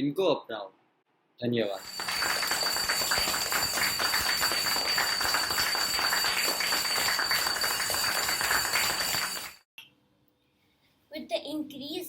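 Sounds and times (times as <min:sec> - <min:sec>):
applause: 0:01.8 - 0:09.6.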